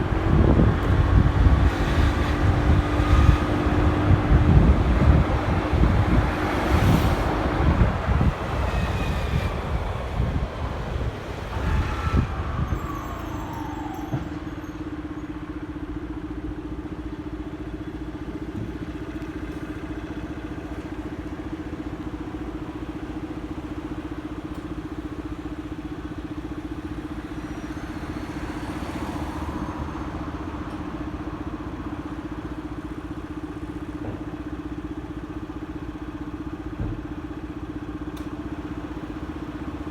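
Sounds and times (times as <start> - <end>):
road noise: 0.0 - 39.9.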